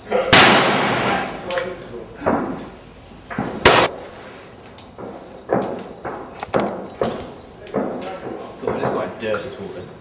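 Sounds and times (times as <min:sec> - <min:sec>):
loud sharp bang: 0:00.3 - 0:01.4, 0:03.6 - 0:04.0.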